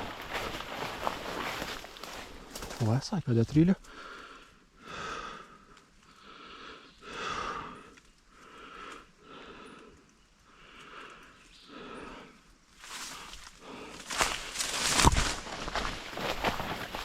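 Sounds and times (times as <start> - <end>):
person breathing heavily: 3.8 - 15.0.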